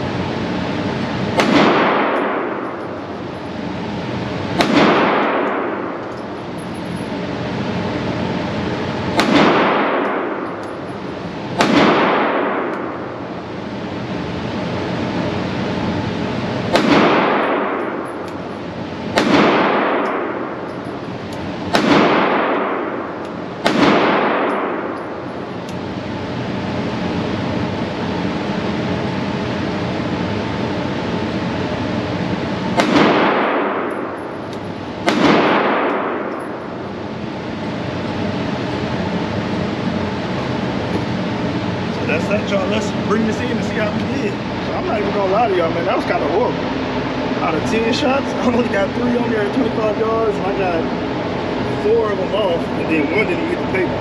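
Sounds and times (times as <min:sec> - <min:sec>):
steady background hum: 0:00.0 - 0:54.0
pistol shots echoing: 0:01.4 - 0:02.7, 0:04.6 - 0:06.0, 0:09.2 - 0:10.5, 0:11.6 - 0:13.0, 0:16.7 - 0:18.2, 0:19.1 - 0:20.7, 0:21.7 - 0:25.1, 0:32.8 - 0:34.2, 0:35.0 - 0:36.6.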